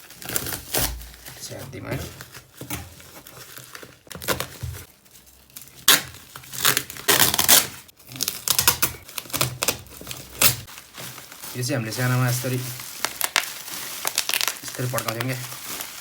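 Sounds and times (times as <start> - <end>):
bubble wrap crinkling and tearing: 0.0 - 16.0.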